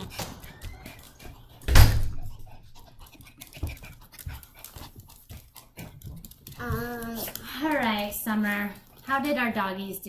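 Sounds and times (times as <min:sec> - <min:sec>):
dog panting: 0:00.0 - 0:10.0
loud thump: 0:01.7 - 0:02.4.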